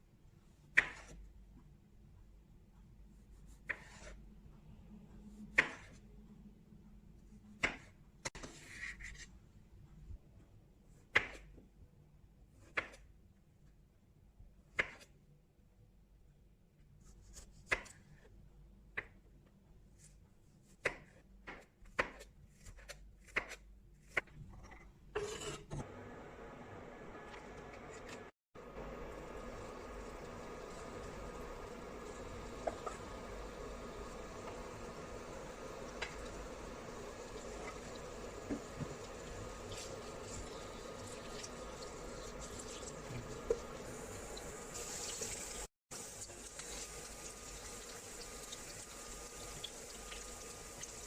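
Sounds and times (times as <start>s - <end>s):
knife chopping on cutting board: 0.7s - 1.2s, 3.6s - 4.2s, 5.5s - 6.0s, 14.7s - 15.1s, 20.8s - 24.3s.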